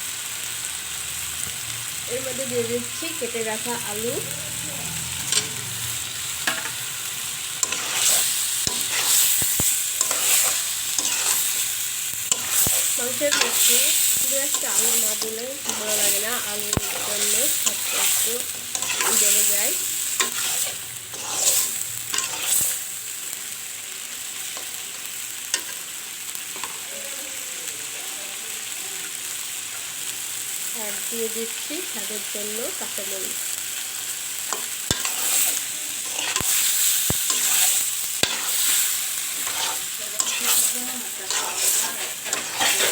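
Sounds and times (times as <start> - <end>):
food sizzling in oil: 0.0 - 42.9
spoon scraping while stirring: 7.6 - 11.6, 16.8 - 19.4, 20.2 - 22.8, 37.3 - 38.8, 39.4 - 42.9.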